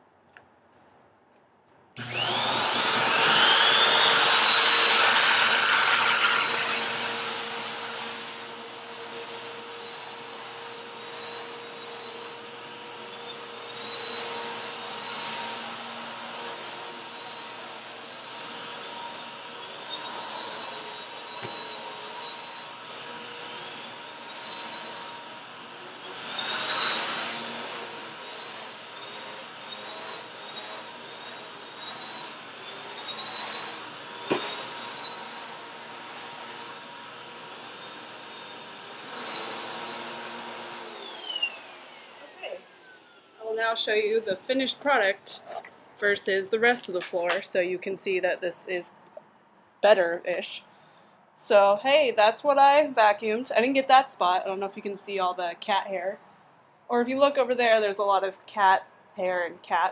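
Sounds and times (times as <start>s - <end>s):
handheld vacuum cleaner motor whine: 2.0s - 45.1s.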